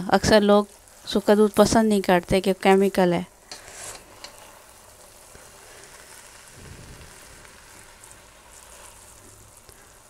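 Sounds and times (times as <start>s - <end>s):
food sizzling faintly in pan: 0.0s - 10.0s
spatula stirring: 3.4s - 6.5s, 7.1s - 10.0s.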